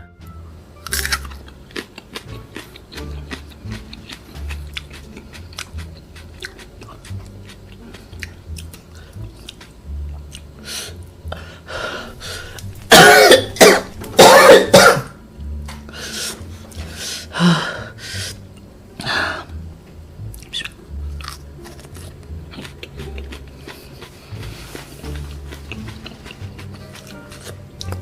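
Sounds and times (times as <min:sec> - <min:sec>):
faint eating clicks: 0:00.9 - 0:10.5, 0:20.3 - 0:28.0
throat clearing: 0:12.9 - 0:15.1
person coughing hard: 0:12.9 - 0:15.2.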